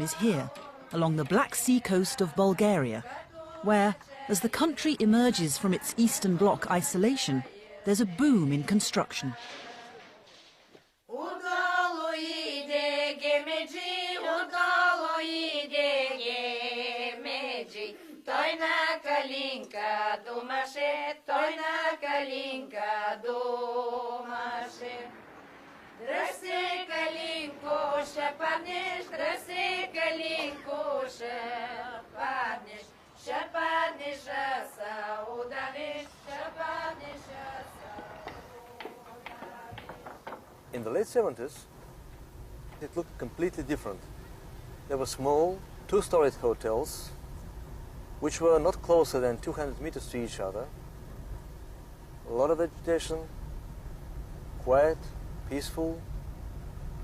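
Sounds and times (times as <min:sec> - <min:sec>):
women singing choir-like chant: 0:00.0 - 0:10.3, 0:11.1 - 0:25.3, 0:26.0 - 0:40.4.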